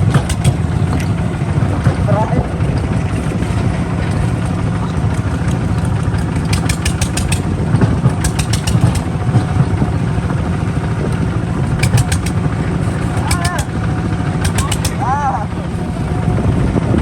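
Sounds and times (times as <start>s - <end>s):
rapid sharp clicks: 0.0s - 2.1s, 5.1s - 9.8s, 11.1s - 15.0s
diesel engine running: 0.0s - 17.0s.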